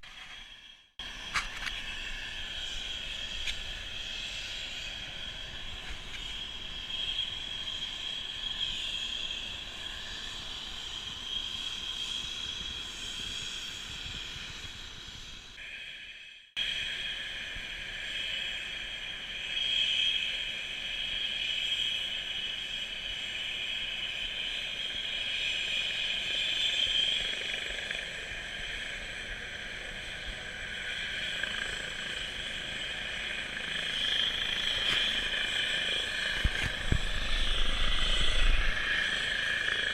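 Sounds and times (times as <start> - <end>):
helicopter running: 1.0 - 15.6, 24.9 - 39.9.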